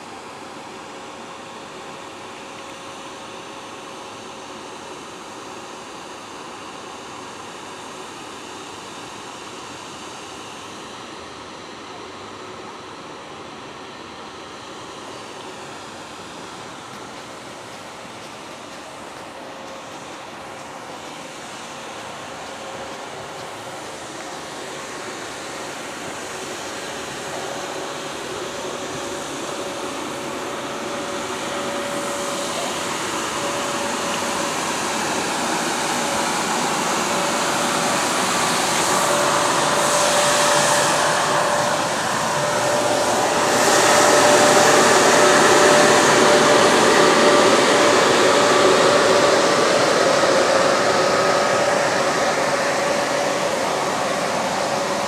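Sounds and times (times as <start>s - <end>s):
steady whine: 0.0s - 55.0s
train passing: 12.5s - 55.0s.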